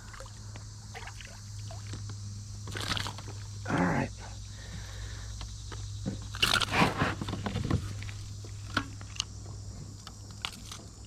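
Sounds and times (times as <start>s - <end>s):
scraping and rustling: 6.4s - 9.0s.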